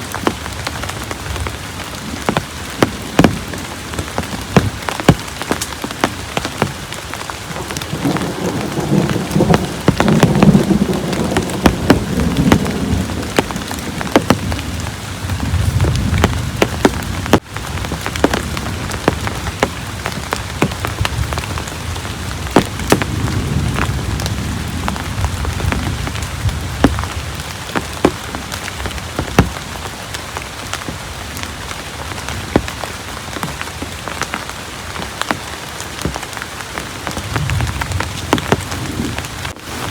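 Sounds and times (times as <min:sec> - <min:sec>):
heavy rain falling: 0:00.0 - 0:39.9
raindrops clicking on surface: 0:00.0 - 0:39.9
low thunder rumbling: 0:06.7 - 0:29.9, 0:36.8 - 0:39.9.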